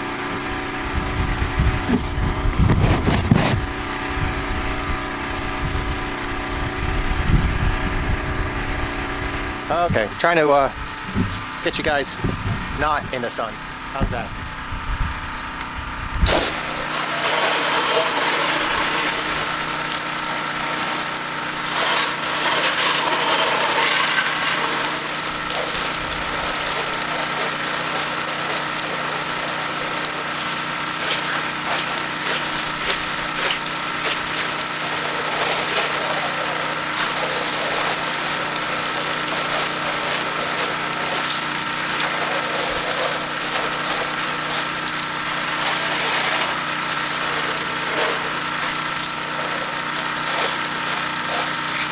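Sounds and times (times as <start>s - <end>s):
pressure washer engine drone: 0.0s - 51.9s
water spray hissing: 16.2s - 51.9s.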